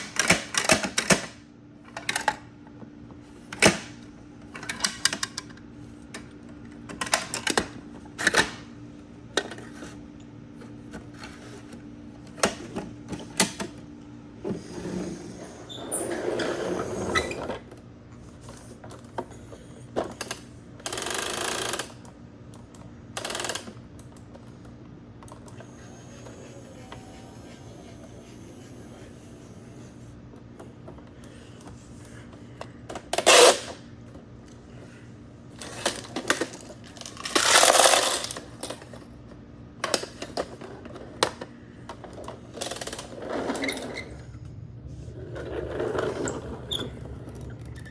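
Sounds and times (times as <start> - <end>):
steady low hum: 22.0 - 39.8, 40.4 - 47.9
plastic toy clicks and knocks: 23.2 - 23.8.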